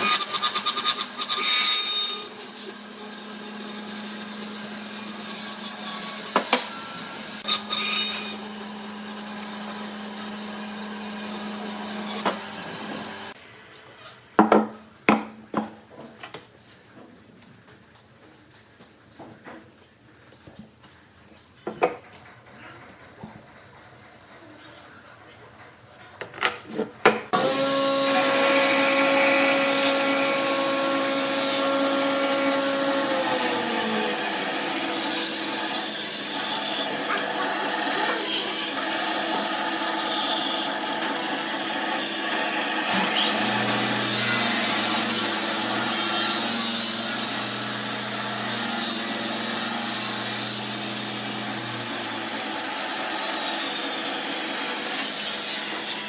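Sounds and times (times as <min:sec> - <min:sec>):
power tool motor hum: 0:03.7 - 0:13.4, 0:27.4 - 0:53.3.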